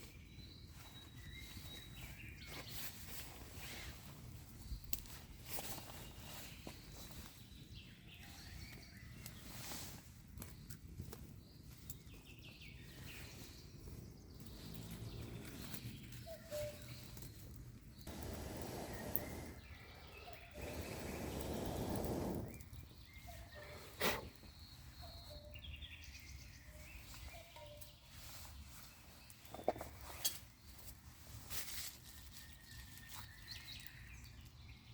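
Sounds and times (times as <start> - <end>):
bird chirps: 0.0 - 2.9, 11.6 - 29.9.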